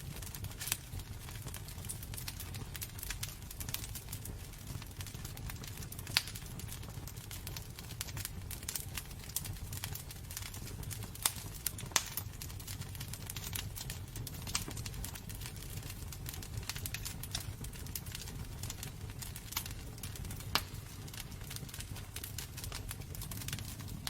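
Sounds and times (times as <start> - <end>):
low fire rumble: 0.0 - 24.0
wood fire crackling and popping: 0.0 - 24.0.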